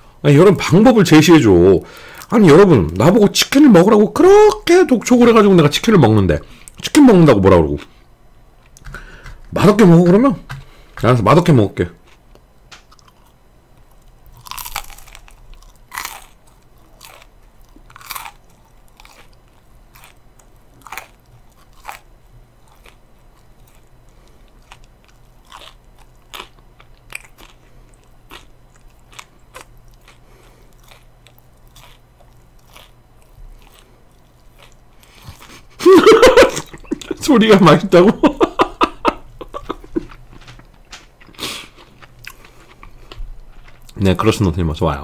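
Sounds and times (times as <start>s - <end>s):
crunchy chewing of fried chicken: 12.0s - 44.2s.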